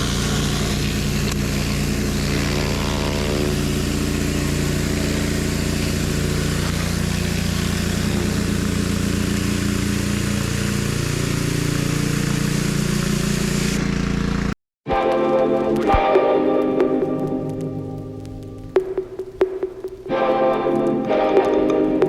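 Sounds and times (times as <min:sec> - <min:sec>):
pressure washer engine running: 0:00.0 - 0:14.5.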